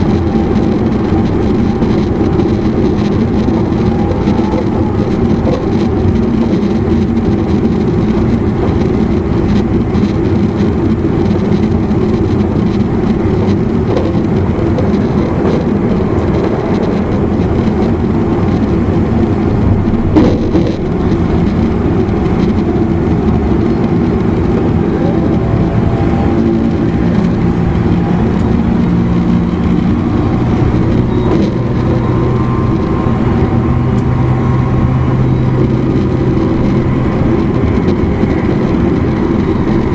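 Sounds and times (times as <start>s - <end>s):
traction motor whine: 0.0s - 19.6s
train wheels rumbling on rail: 0.0s - 39.9s.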